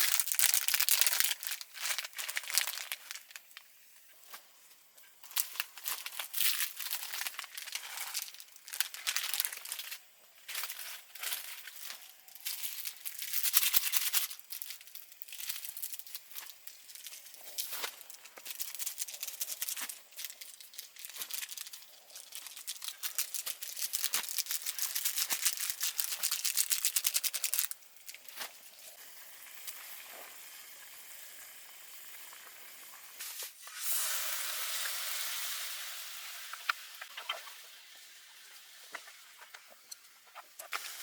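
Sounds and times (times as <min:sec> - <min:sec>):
loud frying hiss: 0:05.2 - 0:41.0
food sizzling in a hot pan: 0:28.7 - 0:39.9, 0:40.6 - 0:41.0.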